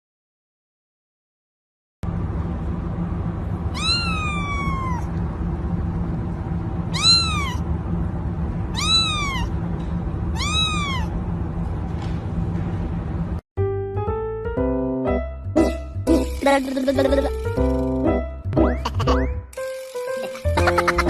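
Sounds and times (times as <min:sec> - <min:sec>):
steady low hum: 0:02.0 - 0:13.4
cat meowing: 0:03.7 - 0:05.2, 0:06.9 - 0:07.7, 0:08.7 - 0:09.6, 0:10.3 - 0:11.2.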